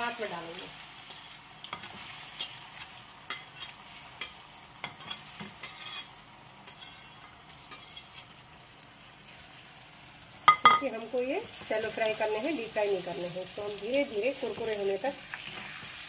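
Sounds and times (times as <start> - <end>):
food sizzling in oil: 0.0 - 16.0
spatula clicking and scraping: 1.2 - 8.3.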